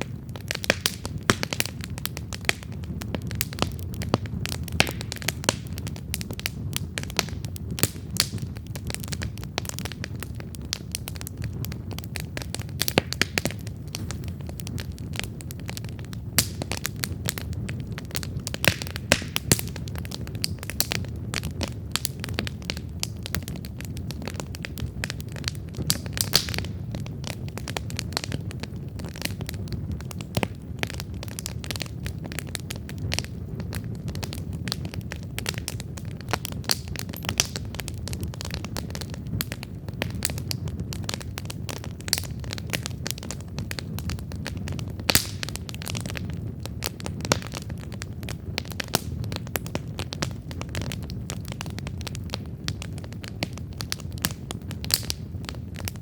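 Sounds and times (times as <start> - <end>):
burning wood crackling and popping: 0.0 - 56.0
low rumble of flames: 0.0 - 56.0.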